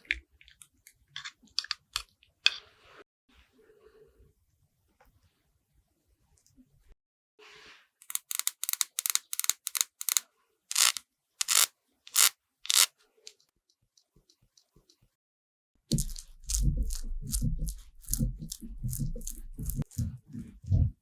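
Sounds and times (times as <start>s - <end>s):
brush scratching over rind: 15.9s - 20.2s.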